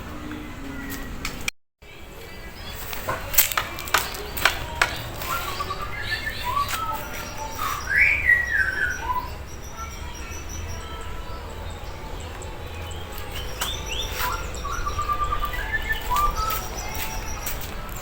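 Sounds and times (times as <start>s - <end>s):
bird singing whistled phrases: 3.9s - 18.0s.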